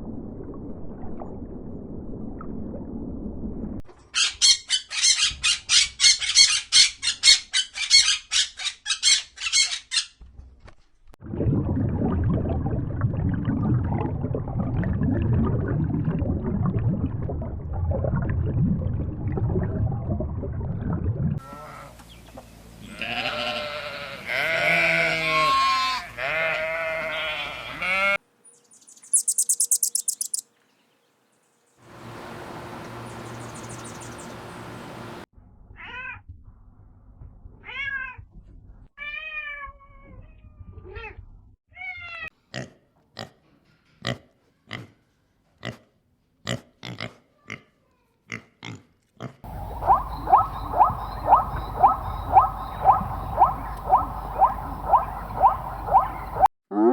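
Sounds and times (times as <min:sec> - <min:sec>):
short rising and falling calls: 0:28.7 - 0:30.4
wavering pitched animal calls: 0:28.8 - 0:30.4, 0:49.5 - 0:56.5
very high rapid clicks: 0:29.1 - 0:30.4
low rumbling animal call: 0:49.5 - 0:56.9.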